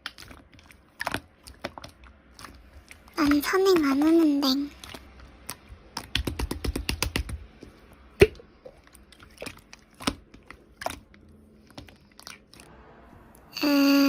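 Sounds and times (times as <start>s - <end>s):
fast keyboard typing: 5.9s - 7.5s.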